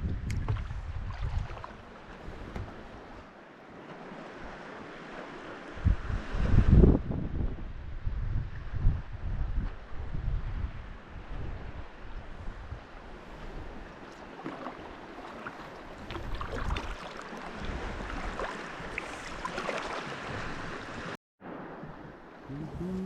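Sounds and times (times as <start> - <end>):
wind rumble on microphone: 0.0 - 3.3, 5.3 - 14.0, 15.9 - 19.4, 20.2 - 23.0
water splashing around kayak: 0.0 - 6.8, 12.6 - 23.0.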